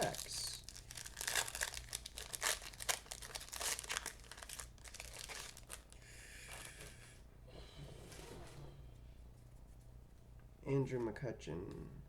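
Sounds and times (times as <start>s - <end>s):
wrapper crinkling and rustling: 0.0s - 6.7s.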